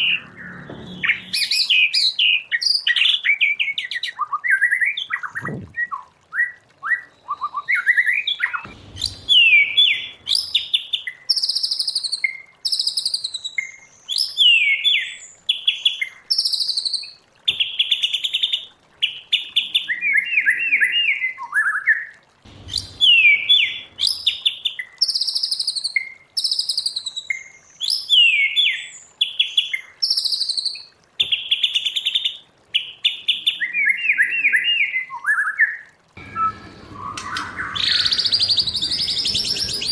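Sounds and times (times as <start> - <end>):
songbird whistling and trilling: 0.0 - 15.3, 19.8 - 22.1, 22.7 - 29.0, 33.5 - 39.9.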